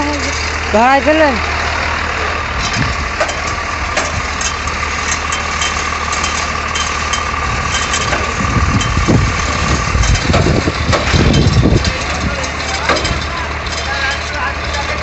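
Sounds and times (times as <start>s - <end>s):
heavy uneven rumble: 0.0s - 15.0s
truck engine idling: 0.0s - 15.0s
metal clicks and knocks: 2.6s - 15.0s.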